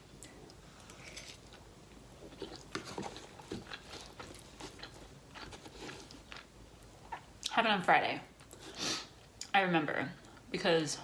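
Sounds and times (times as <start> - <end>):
person chewing food: 0.1 - 7.5.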